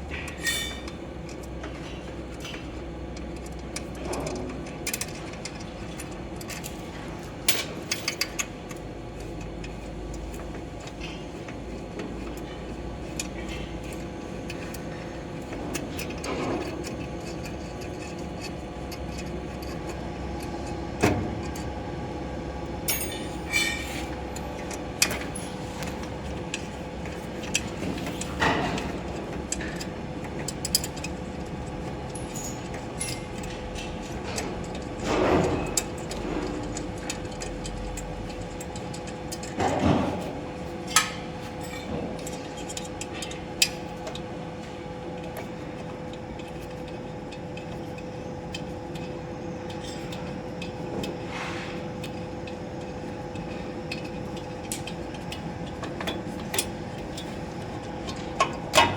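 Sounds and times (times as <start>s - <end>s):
electrical hum: 0.0s - 58.9s
metal tools clinking: 22.9s - 24.2s.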